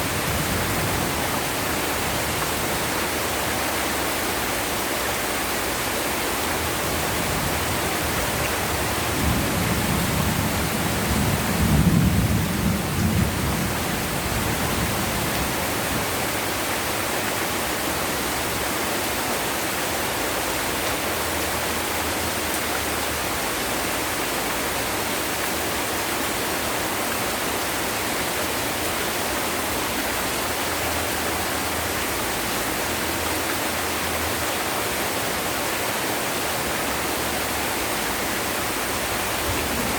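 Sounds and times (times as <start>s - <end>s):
heavy rain: 0.0s - 39.9s
thunder rumbling: 8.7s - 15.7s, 39.1s - 39.9s.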